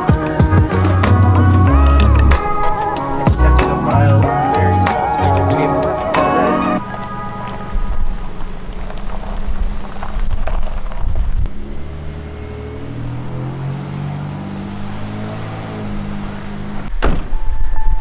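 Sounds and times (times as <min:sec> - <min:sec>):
vehicle engine drone: 0:00.0 - 0:10.9.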